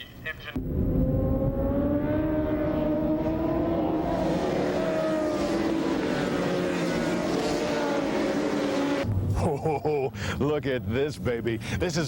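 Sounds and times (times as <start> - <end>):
racing motorcycle engine revving: 0.6 - 9.1.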